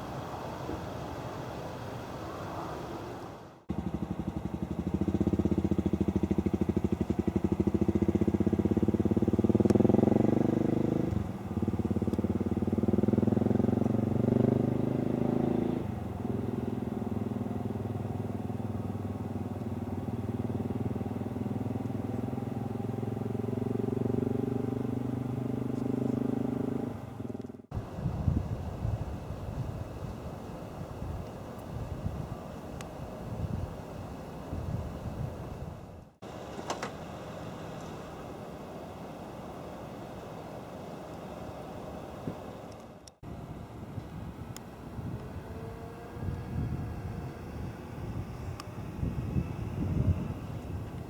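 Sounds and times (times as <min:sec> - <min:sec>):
aircraft engines droning: 0:26.8 - 0:51.0.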